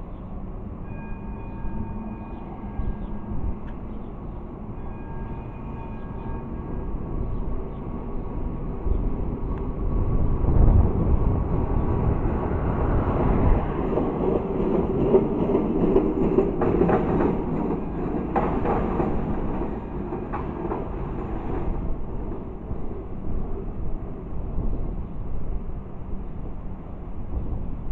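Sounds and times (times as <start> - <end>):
tram rumbling along track: 0.0 - 27.9.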